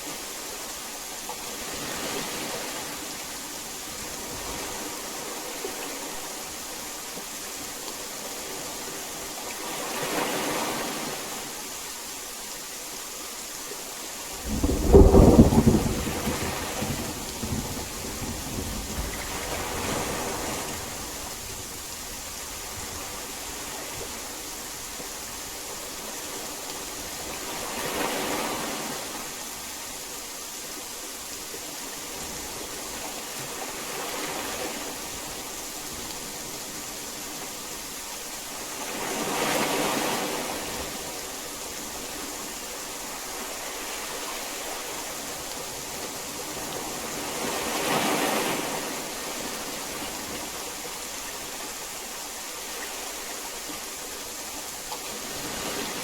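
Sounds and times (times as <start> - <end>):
heavy rain: 0.0 - 56.0
thunderclap rumbling: 14.4 - 21.3.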